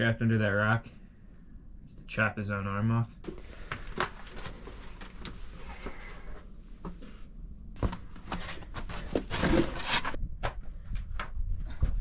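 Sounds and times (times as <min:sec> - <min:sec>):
clothing rustle: 0:03.2 - 0:10.2.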